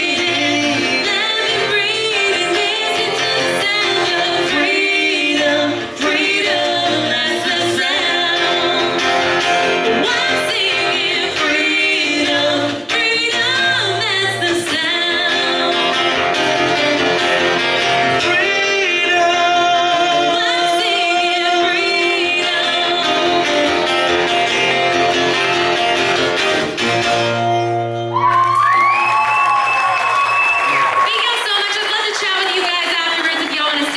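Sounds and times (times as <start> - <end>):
woman singing country-pop song: 0.0 - 17.2, 18.1 - 24.8, 31.1 - 33.9
guitar accompaniment: 0.0 - 33.9.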